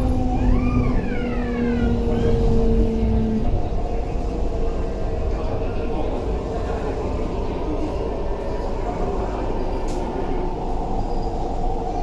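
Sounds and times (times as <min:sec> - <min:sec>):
brief whine: 0:00.0 - 0:03.0
train wheels rumbling on track: 0:00.0 - 0:12.0.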